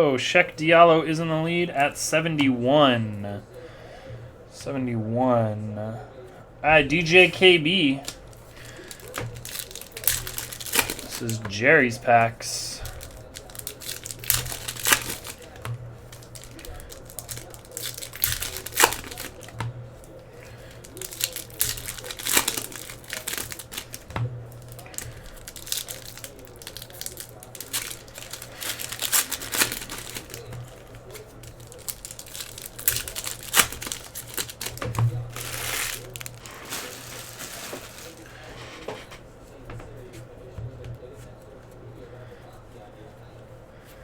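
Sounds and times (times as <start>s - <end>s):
foil wrappers tearing and crinkling: 6.8s - 38.9s
cards being handled: 6.8s - 41.4s.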